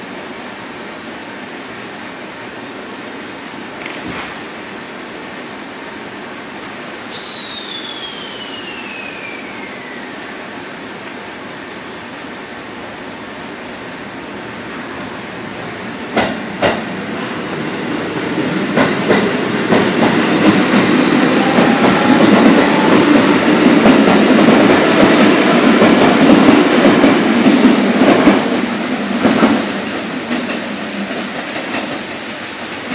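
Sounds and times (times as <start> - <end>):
electric train wheels clacking: 15.5 - 32.9.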